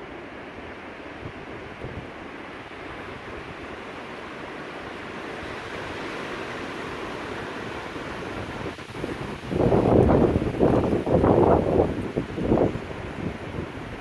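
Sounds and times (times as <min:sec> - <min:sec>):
strong wind blowing: 0:05.3 - 0:14.0.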